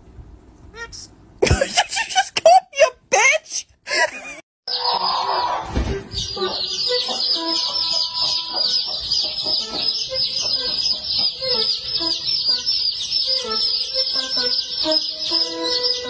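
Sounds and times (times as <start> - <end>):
small birds chirping: 4.7 - 16.0.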